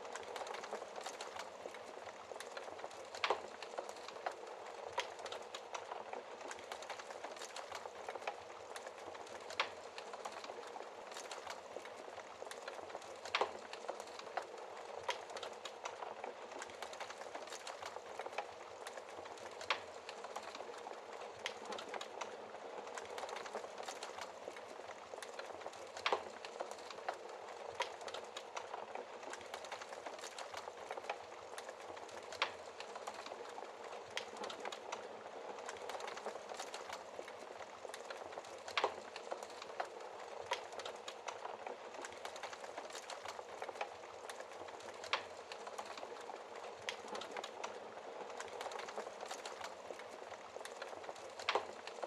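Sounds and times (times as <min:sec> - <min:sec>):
wood fire crackling: 0:00.0 - 0:52.0
fire pops: 0:35.6 - 0:52.0.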